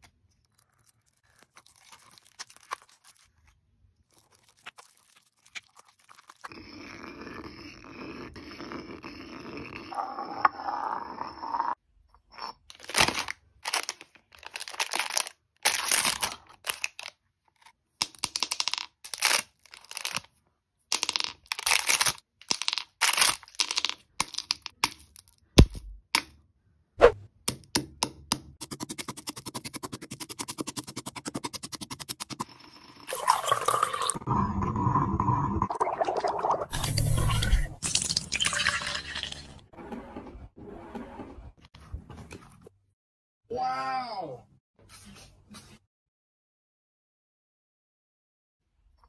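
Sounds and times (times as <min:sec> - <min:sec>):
objects crunching and crackling: 0:00.0 - 0:06.5, 0:12.7 - 0:17.2, 0:21.4 - 0:22.3, 0:22.9 - 0:23.6.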